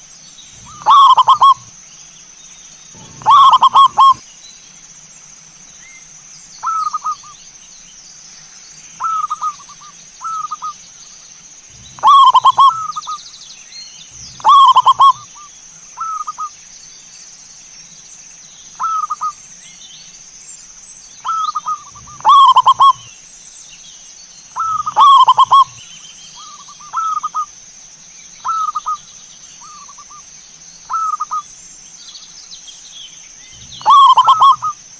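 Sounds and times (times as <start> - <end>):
steady high hiss: 0.0 - 34.9
dove cooing: 0.6 - 1.7, 3.0 - 4.2, 11.7 - 13.2, 14.1 - 15.4, 21.3 - 23.1, 24.6 - 25.8, 26.4 - 27.5, 33.6 - 34.8.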